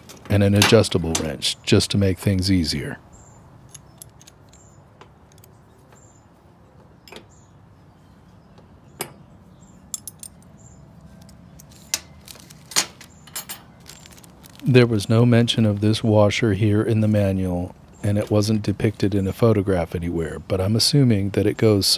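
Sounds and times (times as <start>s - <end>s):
metallic clicks and clinks: 3.6s - 5.6s, 9.9s - 10.6s, 11.2s - 14.4s.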